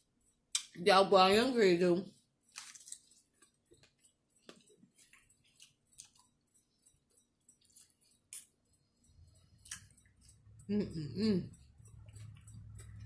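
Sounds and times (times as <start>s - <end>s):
faint chewing of food: 2.1s - 13.0s.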